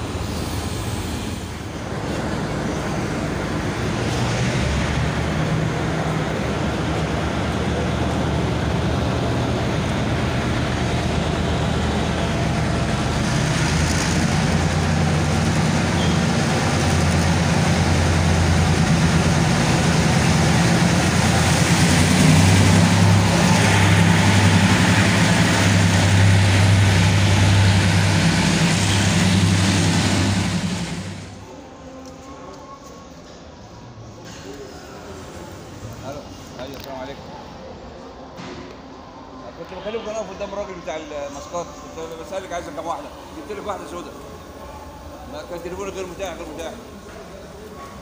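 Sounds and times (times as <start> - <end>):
diesel train engine hum: 0.0 - 48.0
rumble of coaches rolling: 1.6 - 31.5.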